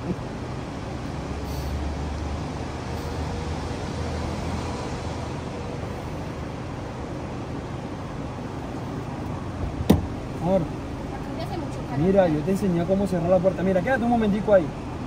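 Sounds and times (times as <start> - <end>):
car engine idling: 5.8 - 15.0.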